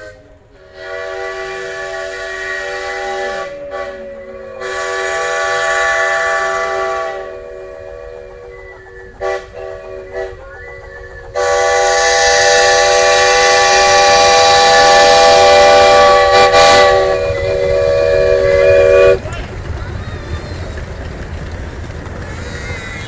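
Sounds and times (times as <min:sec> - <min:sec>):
steam locomotive chime whistle: 0:00.0 - 0:19.2
steam hissing: 0:00.0 - 0:23.0.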